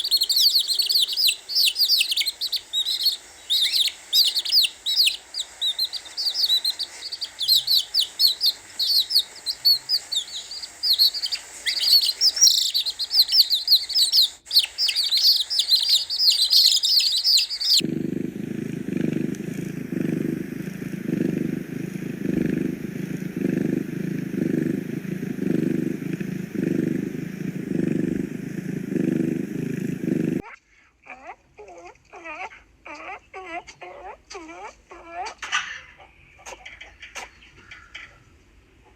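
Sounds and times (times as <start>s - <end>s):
chicks peeping: 0.0s - 17.9s
low rhythmic animal pulsing: 0.0s - 30.4s.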